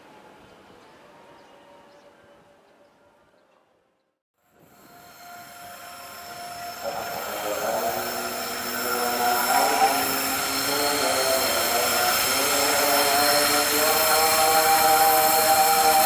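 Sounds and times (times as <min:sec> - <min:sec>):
locomotive engine drone: 0:04.5 - 0:16.0.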